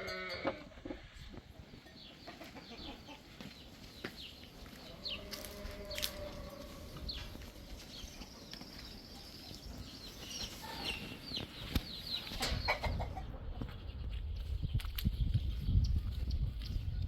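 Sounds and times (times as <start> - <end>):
chickens clucking: 0.8 - 14.0.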